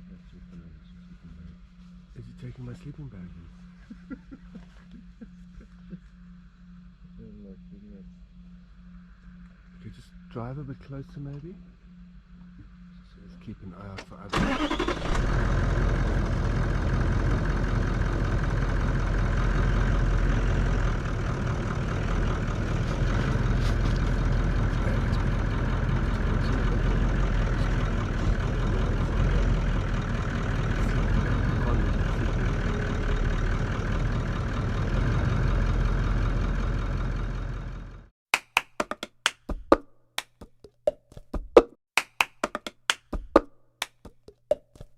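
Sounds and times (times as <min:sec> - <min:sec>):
vehicle engine idling: 0:13.2 - 0:38.1.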